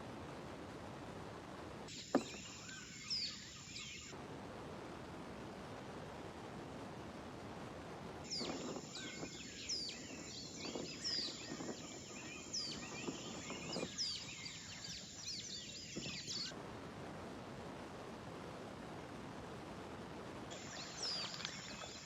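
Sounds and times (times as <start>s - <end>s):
steady background hiss: 0.0s - 22.0s
birds calling: 1.9s - 4.1s, 8.2s - 16.6s, 20.5s - 22.0s.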